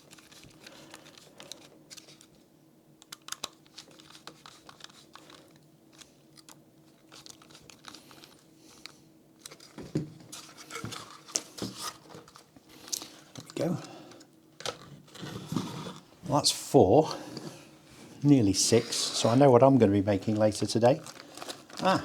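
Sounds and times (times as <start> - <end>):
faint steady hum: 0.0 - 22.0
small parts clicking and tapping: 3.0 - 9.6.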